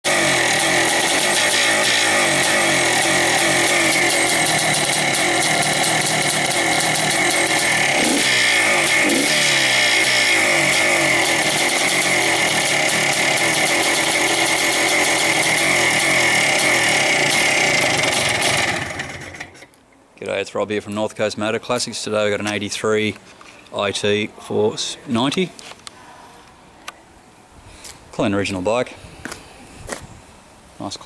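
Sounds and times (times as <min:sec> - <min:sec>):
two-stroke engine idling: 0:00.1 - 0:19.6.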